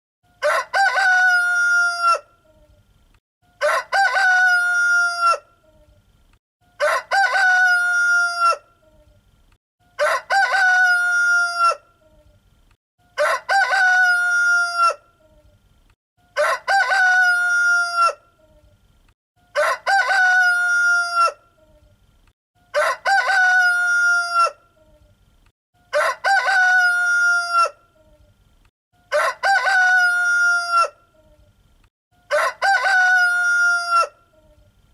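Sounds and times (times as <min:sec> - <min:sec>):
rooster crowing: 0:00.4 - 0:02.3, 0:03.6 - 0:05.5, 0:06.7 - 0:08.7, 0:10.0 - 0:11.8, 0:13.2 - 0:15.0, 0:16.4 - 0:18.2, 0:19.5 - 0:21.4, 0:22.7 - 0:24.6, 0:25.9 - 0:27.8, 0:29.0 - 0:31.0, 0:32.2 - 0:34.2.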